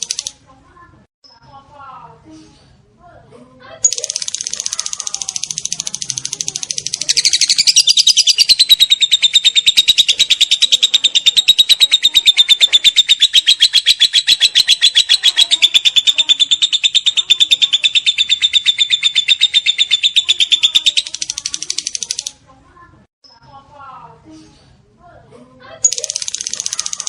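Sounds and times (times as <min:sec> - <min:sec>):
bird rapid chirping chatter: 0:00.0 - 0:00.4, 0:03.8 - 0:22.5, 0:25.8 - 0:27.0.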